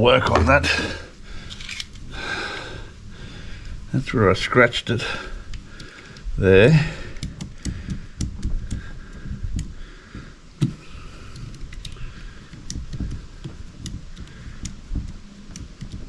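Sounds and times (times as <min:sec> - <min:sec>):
hands clicking and tapping parts: 0:05.5 - 0:16.0.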